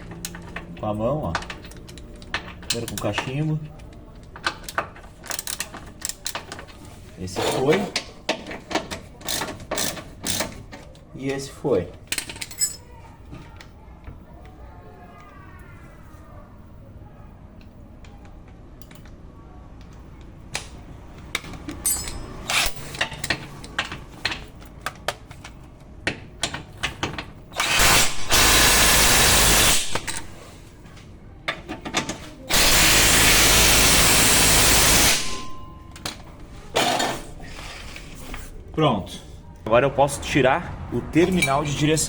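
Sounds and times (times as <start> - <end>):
metal tools clinking: 12.1 - 12.9, 21.6 - 24.0
power tool running: 27.6 - 30.3, 32.5 - 35.6.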